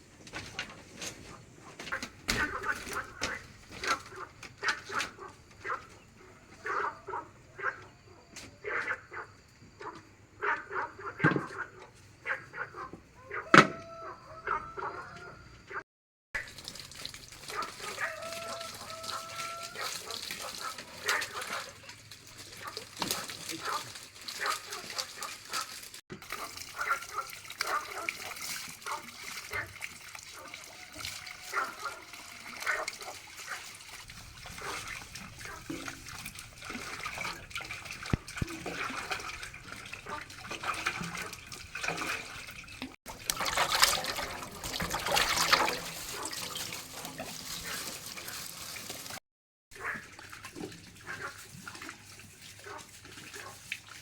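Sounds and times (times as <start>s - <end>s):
water splashing and trickling: 0.0s - 8.7s, 16.4s - 54.0s
poultry calling: 1.2s - 15.8s, 17.4s - 25.7s, 30.4s - 41.4s.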